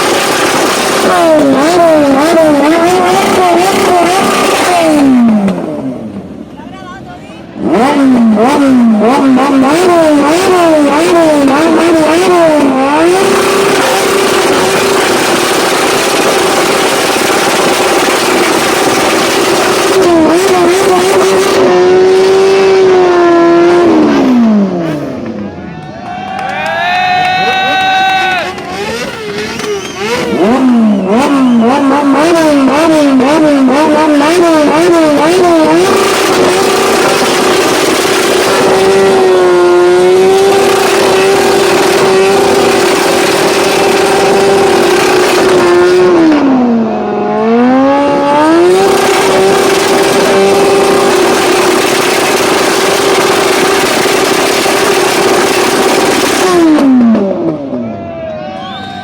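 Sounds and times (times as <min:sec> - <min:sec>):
motorcycle engine revving: 0:00.0 - 0:06.5, 0:07.4 - 0:25.5, 0:28.2 - 0:57.8.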